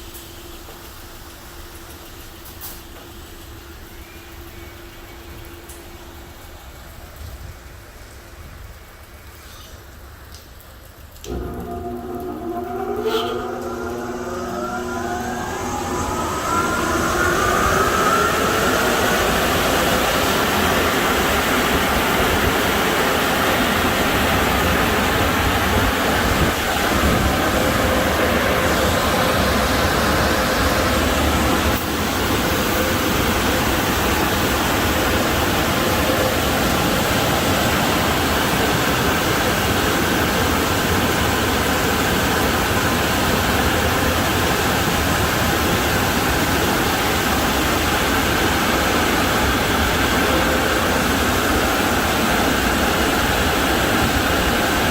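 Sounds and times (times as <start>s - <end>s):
car wash air dryer blowers: 11.2s - 54.9s.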